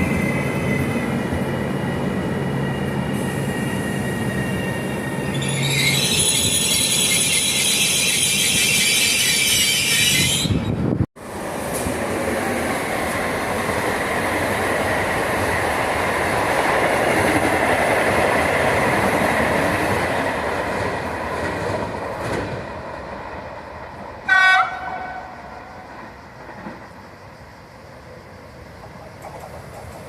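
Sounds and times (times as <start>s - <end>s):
train passing: 0.0s - 30.0s
train horn blast: 24.3s - 25.5s.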